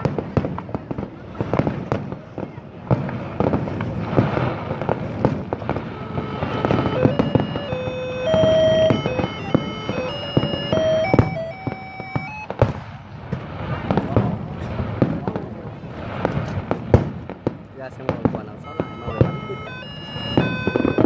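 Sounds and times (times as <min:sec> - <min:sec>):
fireworks popping and crackling: 0:00.0 - 0:21.0
held tones playing a tune: 0:05.6 - 0:12.6, 0:18.5 - 0:21.0.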